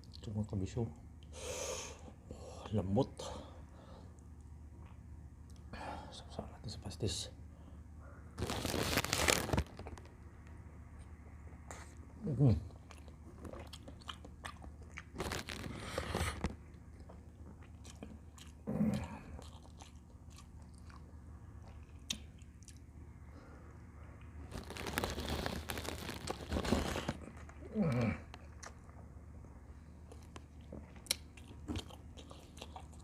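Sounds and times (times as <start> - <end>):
person chewing and biting food: 12.7 - 22.9, 30.0 - 33.0.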